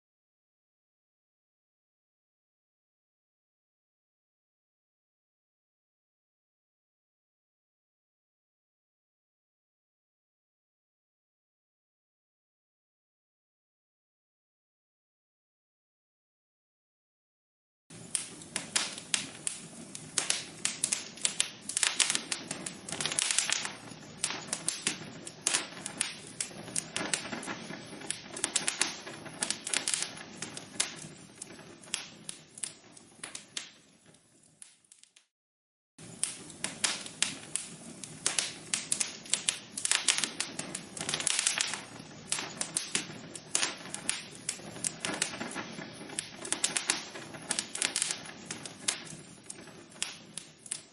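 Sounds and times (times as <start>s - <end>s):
log fire crackling: 17.9s - 35.2s, 36.0s - 50.9s.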